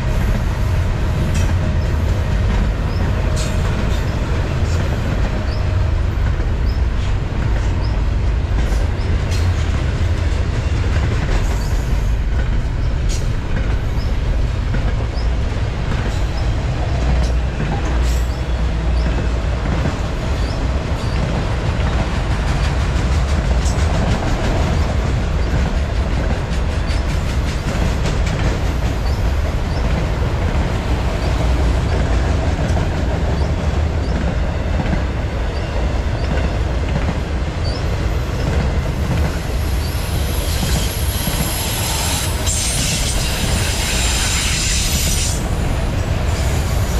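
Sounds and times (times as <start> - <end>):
rumble of train wheels on rail: 0.0 - 46.9.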